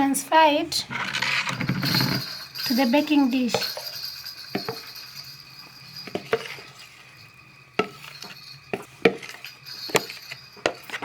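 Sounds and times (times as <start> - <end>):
utensil clinking on kitchenware: 1.3 - 11.0.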